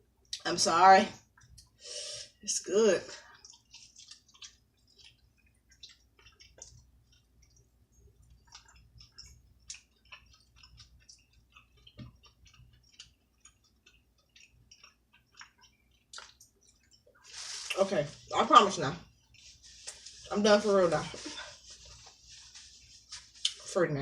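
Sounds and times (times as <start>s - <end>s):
wet chewing mouth clicks: 3.2s - 17.8s.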